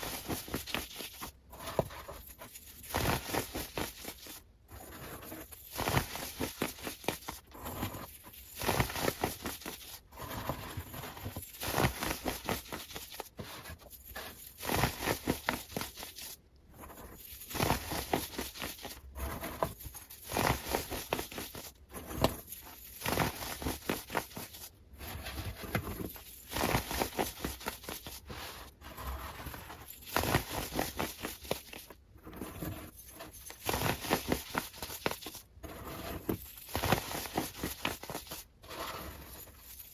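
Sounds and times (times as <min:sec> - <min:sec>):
scratching: 0:00.0 - 0:39.9.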